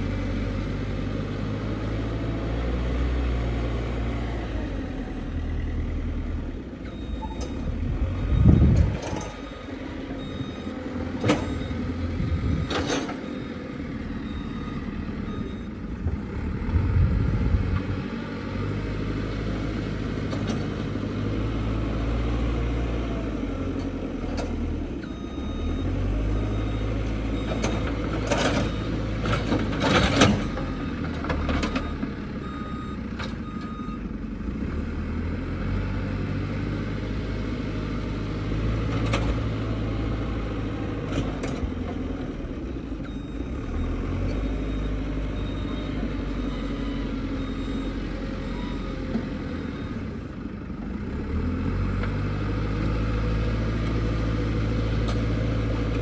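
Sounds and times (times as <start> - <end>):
heavy diesel engines running: 0.0 - 56.0
reversing beeps: 6.9 - 15.8, 25.0 - 34.0, 43.0 - 50.2.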